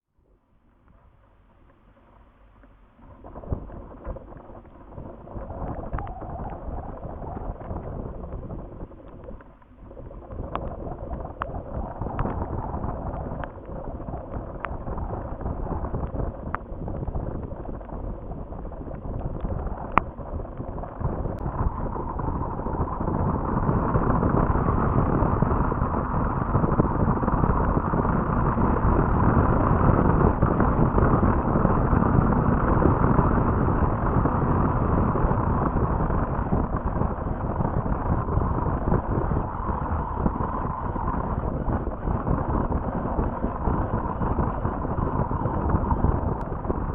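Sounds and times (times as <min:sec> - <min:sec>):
wind rumbling on microphone: 0:00.0 - 0:46.9
faint clicks: 0:00.7 - 0:22.2.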